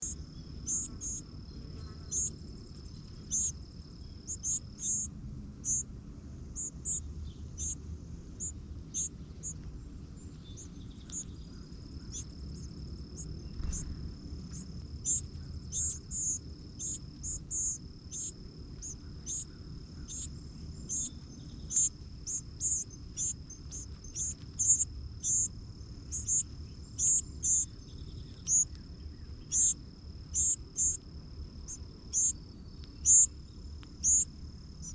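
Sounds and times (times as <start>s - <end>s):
crickets trilling: 0.0s - 34.9s.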